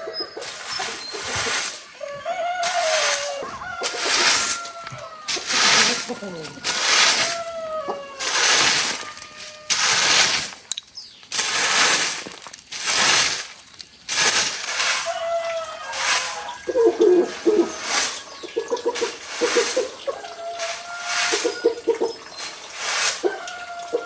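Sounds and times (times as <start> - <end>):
birds calling faintly: 0.0 - 24.0
rasping saw strokes on wood: 2.6 - 7.6, 8.2 - 10.6, 14.1 - 18.3, 19.0 - 21.8, 22.4 - 23.5.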